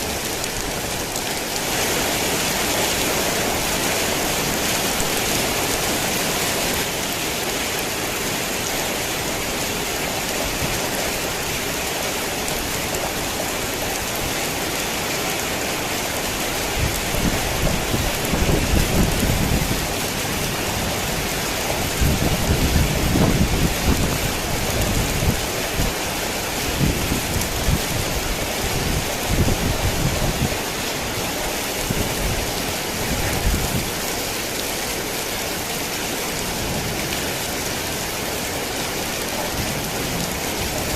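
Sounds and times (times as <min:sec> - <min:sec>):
heavy rain pouring: 0:00.0 - 0:40.9
thunder rumbling: 0:16.8 - 0:25.4.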